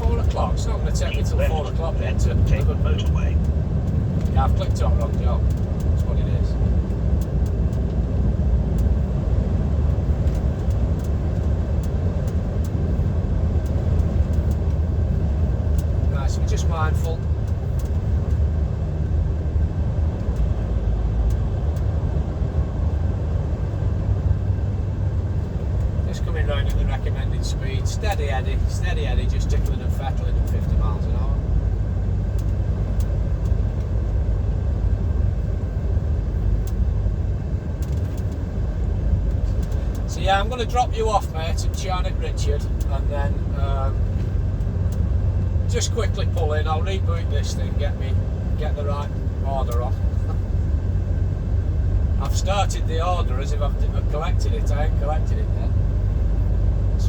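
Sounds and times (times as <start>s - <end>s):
lorry diesel engine and tyres rumbling: 0.0s - 57.0s
faint ticks: 39.3s - 40.1s.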